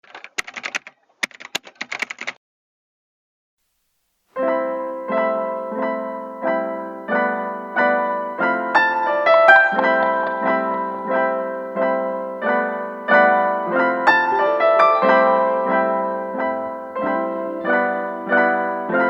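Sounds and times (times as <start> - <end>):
piano chords: 4.4 - 19.0
crackling with sharp clicks: 9.5 - 11.2.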